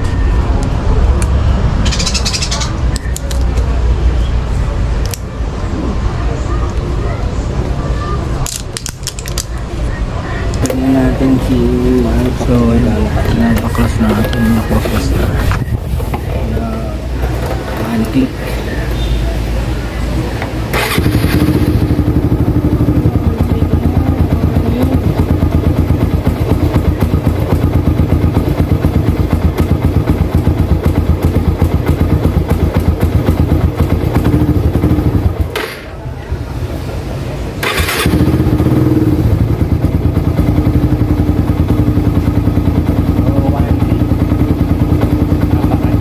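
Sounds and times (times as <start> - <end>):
motorcycle engine starting: 20.6 - 36.0, 37.6 - 46.0
motorcycle engine idling: 20.7 - 35.9, 37.6 - 46.0.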